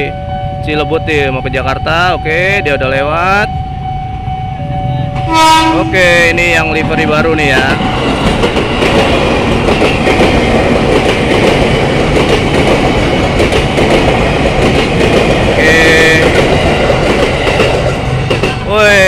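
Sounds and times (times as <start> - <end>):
brief high tone: 0.0 - 7.4
train wheels clattering over joints: 6.8 - 18.8.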